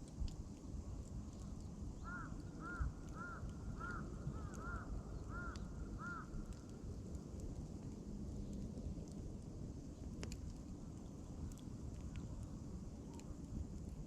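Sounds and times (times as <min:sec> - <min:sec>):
campfire crackling: 0:00.0 - 0:14.0.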